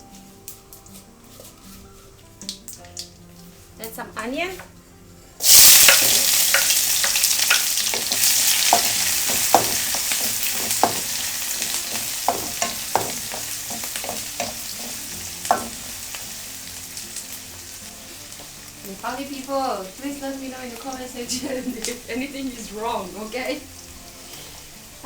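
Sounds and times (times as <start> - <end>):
utensil stirring in pan: 0.0 - 2.6, 5.4 - 25.0
onion sizzling in hot oil: 5.4 - 25.0.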